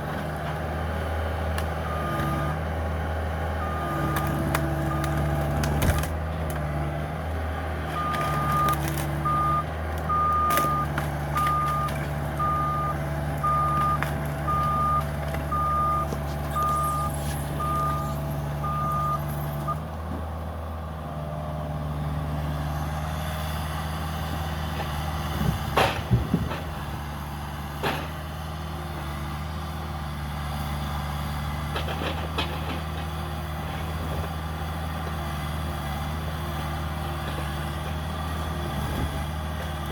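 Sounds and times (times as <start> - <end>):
diesel engine running: 0.0 - 39.9
travel alarm beeping: 8.0 - 19.2.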